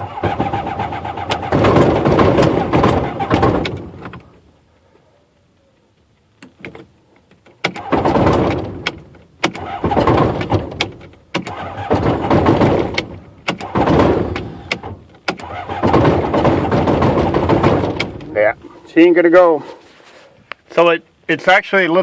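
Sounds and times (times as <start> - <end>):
aircraft engine starter cranking: 0.0 - 4.3, 6.5 - 18.3.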